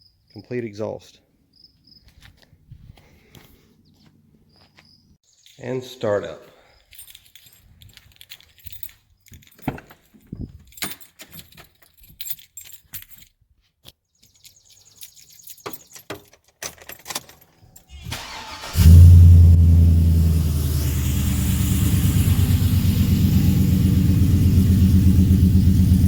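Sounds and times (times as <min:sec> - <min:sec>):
handling clicks and rustles: 0:04.6 - 0:18.6
truck engine idling: 0:18.0 - 0:26.0.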